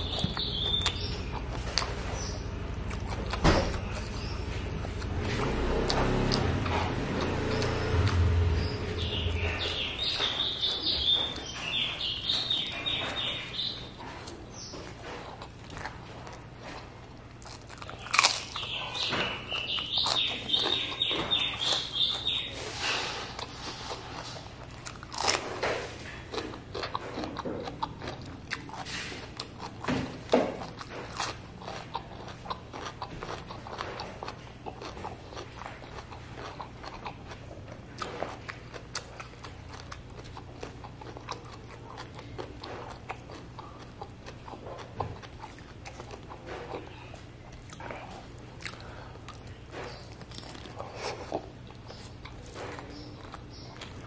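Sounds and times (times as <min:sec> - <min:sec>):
person crunching fried chicken skin: 0:14.3 - 0:22.5, 0:23.4 - 0:29.9, 0:30.6 - 0:54.0.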